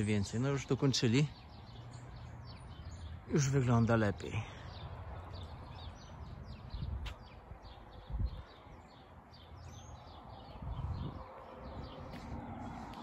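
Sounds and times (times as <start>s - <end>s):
small birds chirping: 0.0s - 13.0s
wind on the microphone: 5.7s - 9.0s, 9.6s - 13.0s.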